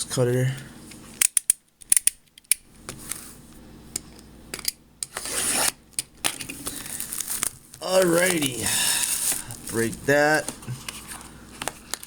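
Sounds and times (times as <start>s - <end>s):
box cutter slicing plastic wrap: 5.1s - 10.5s.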